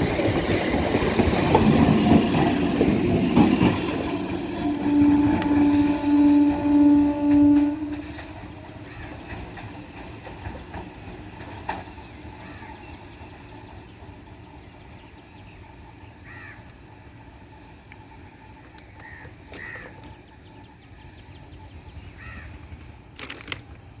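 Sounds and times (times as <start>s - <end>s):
loud steady train tone: 0.0s - 24.0s
crows cawing: 16.2s - 16.7s, 19.0s - 20.0s, 22.2s - 22.6s.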